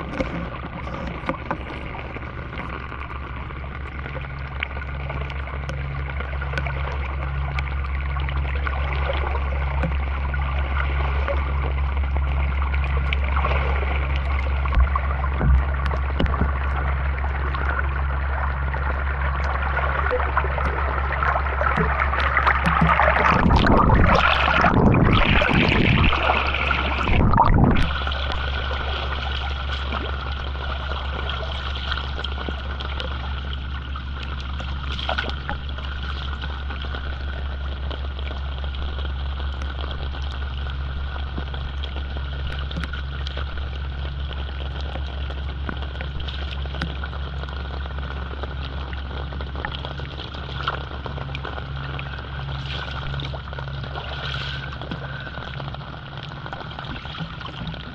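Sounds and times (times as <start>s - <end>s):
low motor hum: 0.0s - 57.9s
water hissing: 13.3s - 33.5s, 51.7s - 57.9s.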